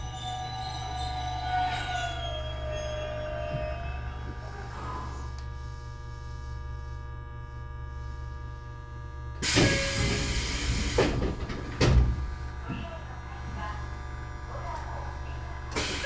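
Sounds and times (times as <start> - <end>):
train electrical hum: 0.0 - 16.0
air hiss of train doors: 9.4 - 12.4, 15.7 - 16.0.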